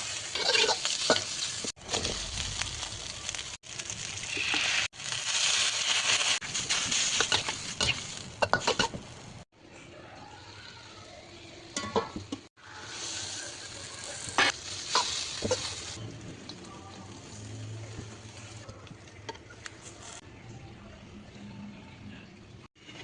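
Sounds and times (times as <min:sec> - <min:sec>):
food sizzling in a pan: 0:00.0 - 0:09.4, 0:10.2 - 0:18.6
spatula scraping a pan: 0:00.3 - 0:02.2.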